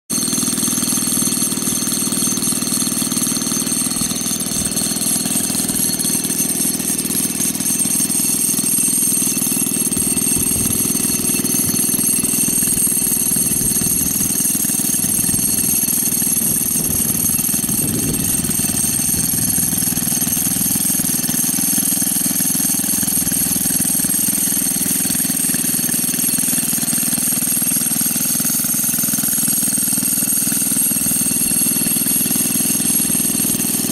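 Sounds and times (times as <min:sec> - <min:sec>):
small motorbike engine running: 0:00.1 - 0:33.9.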